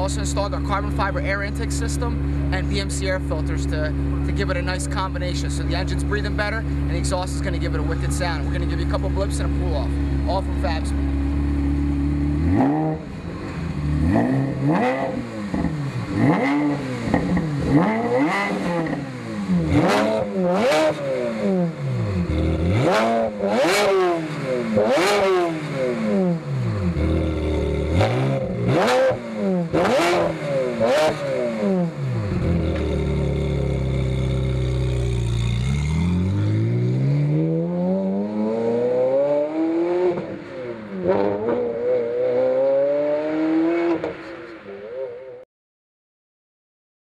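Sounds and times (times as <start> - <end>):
sports car engine revving: 0.0 - 45.4.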